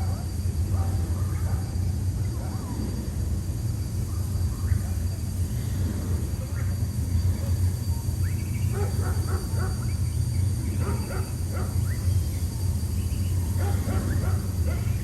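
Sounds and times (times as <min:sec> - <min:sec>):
boat engine low rumble: 0:00.0 - 0:15.0
dog-like barks and yips: 0:08.7 - 0:09.8, 0:10.8 - 0:11.9, 0:13.6 - 0:15.0.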